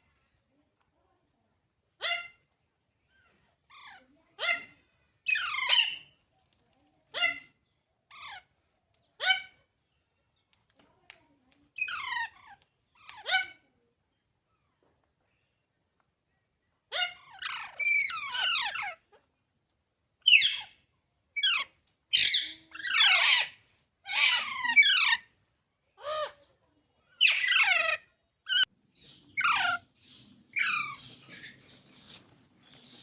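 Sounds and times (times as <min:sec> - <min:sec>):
baby parrots squawking: 0:02.0 - 0:02.3, 0:05.3 - 0:06.1, 0:07.2 - 0:07.5, 0:11.8 - 0:13.6, 0:16.9 - 0:19.0, 0:20.3 - 0:20.8, 0:21.4 - 0:25.3, 0:27.2 - 0:31.8.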